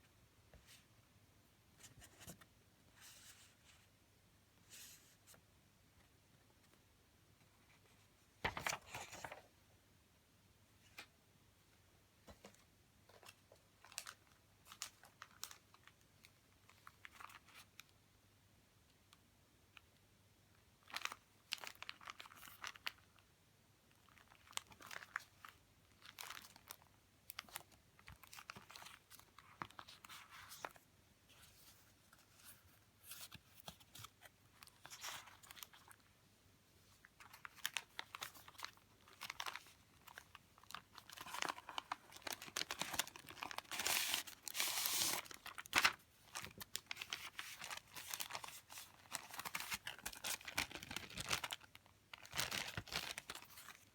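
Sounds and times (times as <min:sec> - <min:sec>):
paper and plastic sleeves rustling: 0:07.5 - 0:09.5, 0:20.8 - 0:23.1, 0:23.9 - 0:36.1, 0:36.8 - 0:53.9.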